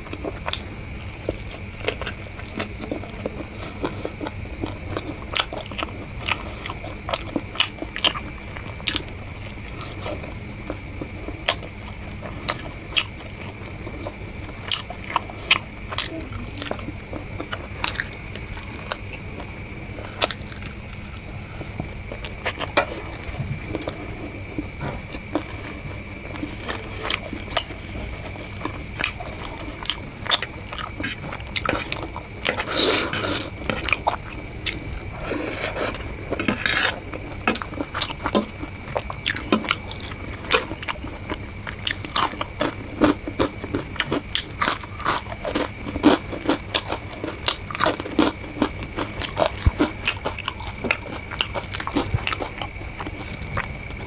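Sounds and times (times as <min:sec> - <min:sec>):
close chewing and mouth clicks: 0:00.0 - 0:54.0
steady hiss: 0:16.9 - 0:42.1.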